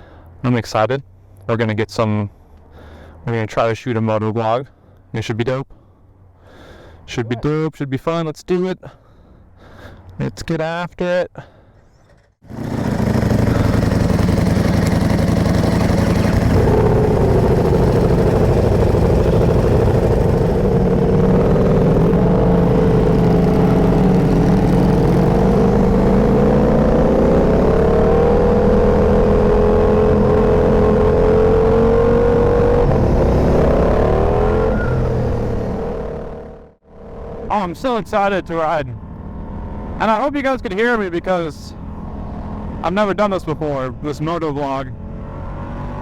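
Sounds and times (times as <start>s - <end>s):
motorcycle engines revving: 12.4s - 46.0s.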